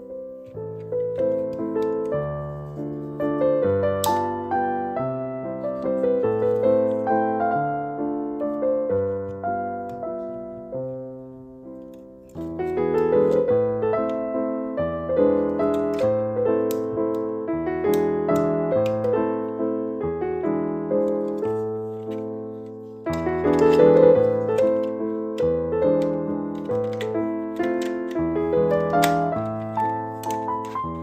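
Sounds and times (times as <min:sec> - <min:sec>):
piano music: 0:00.0 - 0:31.0.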